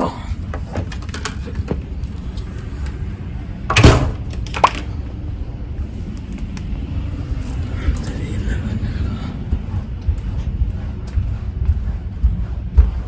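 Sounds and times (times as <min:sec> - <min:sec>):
low rumble: 0:00.0 - 0:13.0
door shutting with heavy thud: 0:03.7 - 0:04.3.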